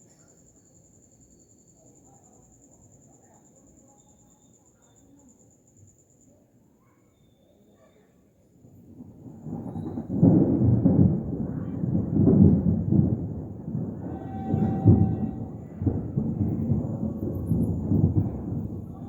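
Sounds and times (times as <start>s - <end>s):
thunder rumbling: 8.6s - 19.0s.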